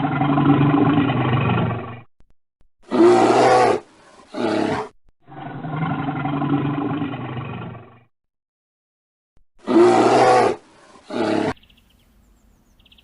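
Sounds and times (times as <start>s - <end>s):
deep animal roars: 0.0s - 2.1s, 2.8s - 8.1s, 9.6s - 11.6s.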